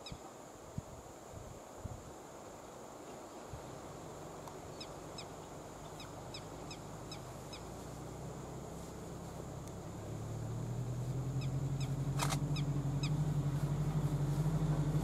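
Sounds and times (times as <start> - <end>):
low hum: 5.4 - 15.0.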